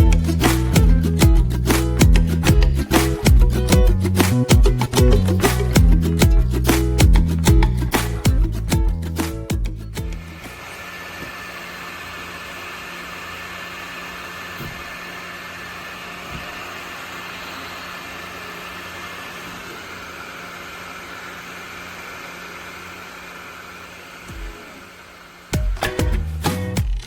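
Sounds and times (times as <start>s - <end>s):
portable fan running: 9.2s - 25.6s.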